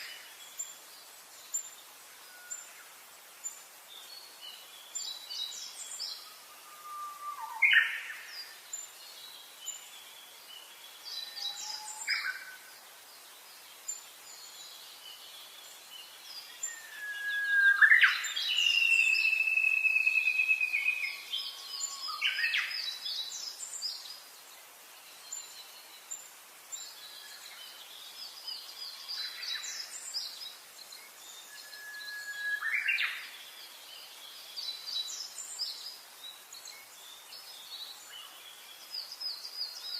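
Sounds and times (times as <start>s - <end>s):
long whistled bird note: 16.7s - 21.2s.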